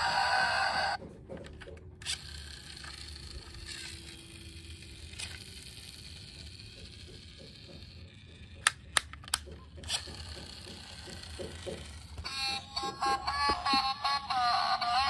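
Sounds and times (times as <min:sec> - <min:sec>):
electronic toy sound effect: 0:00.0 - 0:01.0, 0:12.0 - 0:15.0
small toys clicking and rattling: 0:01.4 - 0:15.0.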